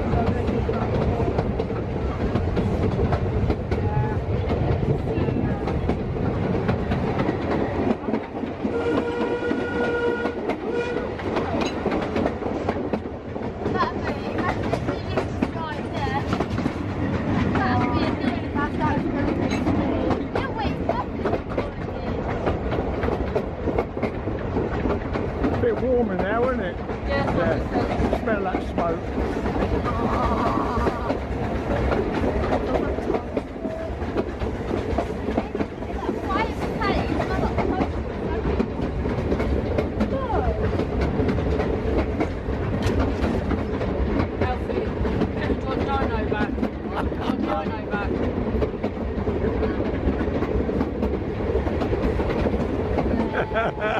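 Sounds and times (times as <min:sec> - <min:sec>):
train wheels clicking over rail joints: 0:00.0 - 0:53.9.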